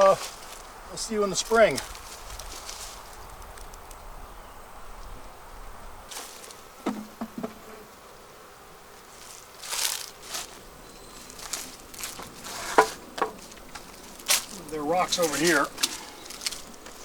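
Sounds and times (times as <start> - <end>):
honeybees buzzing: 0.0 - 17.0
rustle: 0.0 - 17.0
sharp knocks: 6.8 - 7.6, 12.7 - 13.4.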